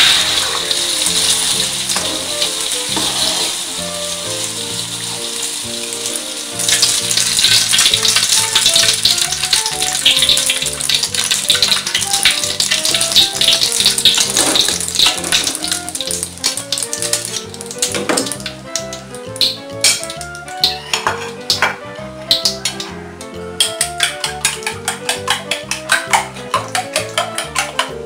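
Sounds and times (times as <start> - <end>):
omelette sizzling in oil: 0.0 - 21.6
background music: 0.0 - 28.0.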